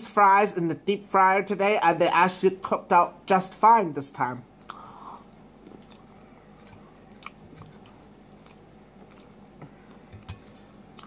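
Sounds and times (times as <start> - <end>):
person chewing fries: 4.5 - 11.0.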